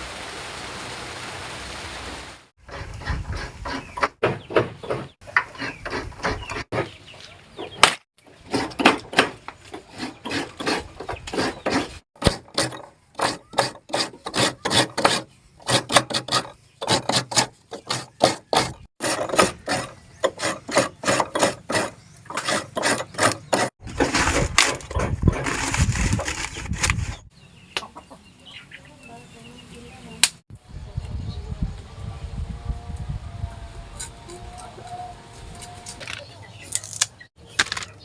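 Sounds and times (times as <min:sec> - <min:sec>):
utensil scraping on wood: 0:02.6 - 0:04.2, 0:04.8 - 0:07.0, 0:08.3 - 0:27.2.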